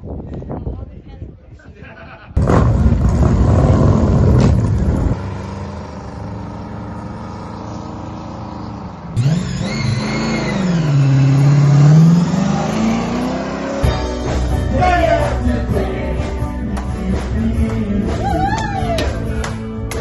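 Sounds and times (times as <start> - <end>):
engine revving: 2.4 - 18.2.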